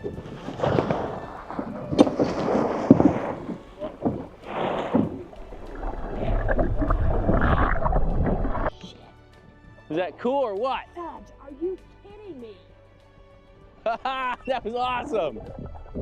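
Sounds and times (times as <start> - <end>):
wind on microphone: 0.0 - 8.7, 15.3 - 16.0
boat engine rumble: 0.0 - 8.8
water rushing and splashing: 0.0 - 8.8.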